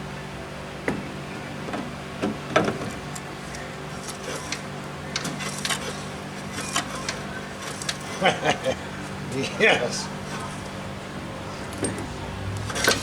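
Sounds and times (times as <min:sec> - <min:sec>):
steady low hum: 0:00.0 - 0:13.0
small metal parts clicking: 0:03.1 - 0:09.2.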